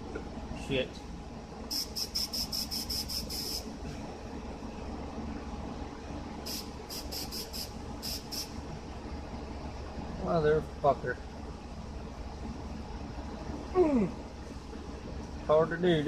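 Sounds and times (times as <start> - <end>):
steady low hum: 0.0 - 16.0
spray paint can hissing: 1.7 - 3.7, 6.5 - 8.6.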